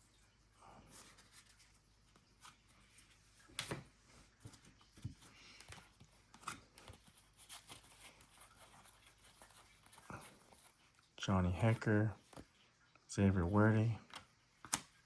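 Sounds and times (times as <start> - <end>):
cards rustling and sliding: 0.8 - 10.9, 13.3 - 15.0
card snapping: 14.1 - 15.0.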